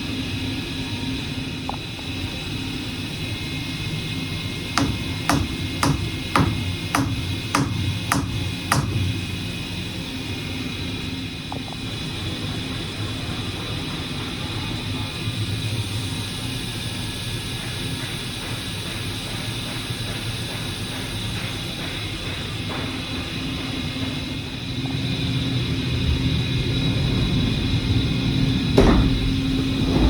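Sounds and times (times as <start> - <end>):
milling machine humming and whining: 0.0 - 30.0
sharp knocks: 4.8 - 9.2.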